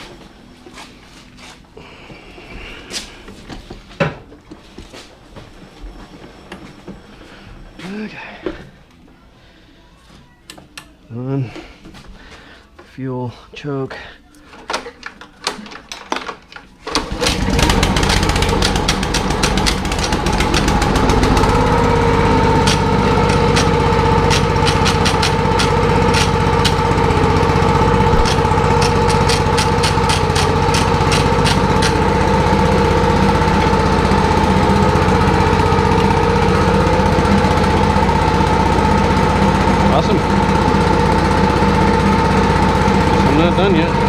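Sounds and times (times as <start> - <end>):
small gas engine starting and running: 16.8 - 44.0.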